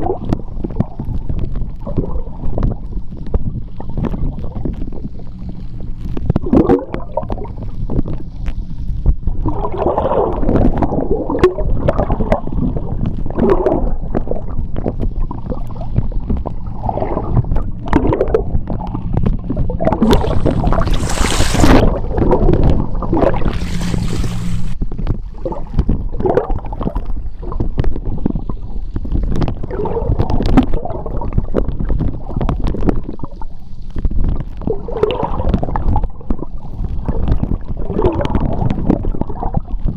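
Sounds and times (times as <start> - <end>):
underwater seawater churning: 3.8 - 24.8
brief bright hiss: 20.0 - 22.0, 23.0 - 24.8.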